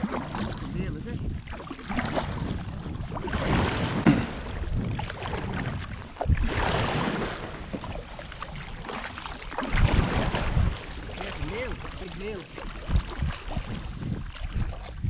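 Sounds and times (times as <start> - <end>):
seawater splashing against hull: 0.0 - 15.0
knock on boat: 3.9 - 4.9.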